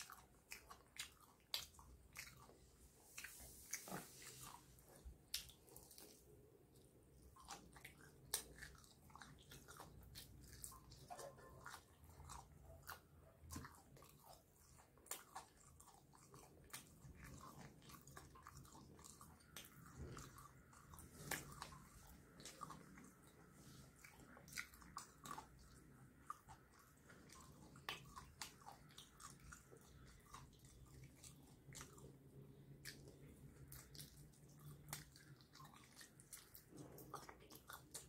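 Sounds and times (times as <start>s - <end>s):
person chewing and biting food: 0.0s - 38.0s
wet mouth clicks: 5.2s - 6.2s.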